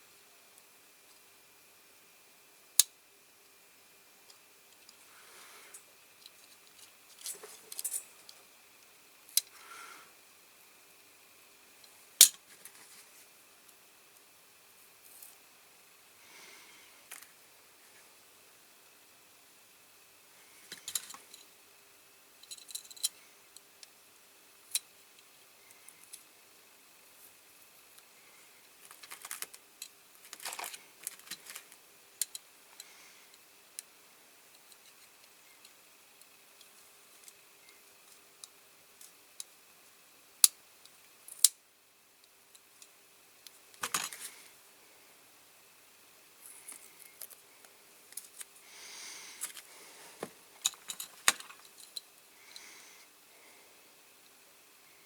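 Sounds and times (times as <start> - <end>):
small parts clicking: 22.4 - 23.9, 28.0 - 33.9, 40.4 - 41.6, 42.2 - 44.3, 50.6 - 52.7
small parts rubbing: 28.7 - 32.4, 43.8 - 44.5.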